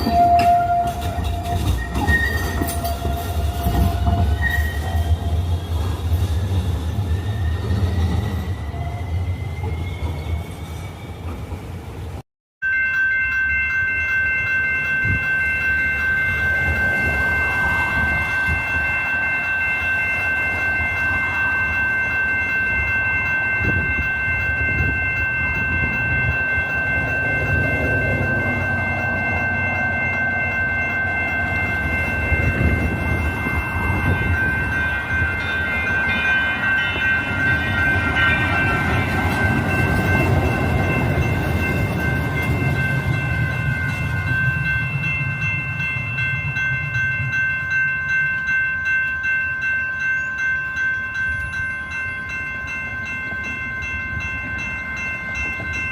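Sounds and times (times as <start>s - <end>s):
light rail train rumbling: 0.0s - 55.9s
high steady tones: 12.6s - 55.9s
high wavering tones: 12.6s - 55.9s.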